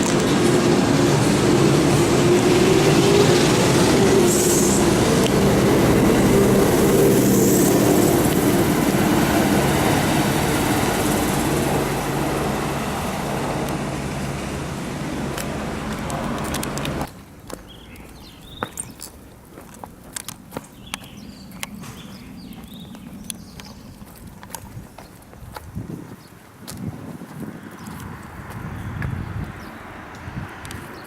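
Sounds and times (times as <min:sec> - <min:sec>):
electric train rumbling: 0:00.0 - 0:18.6.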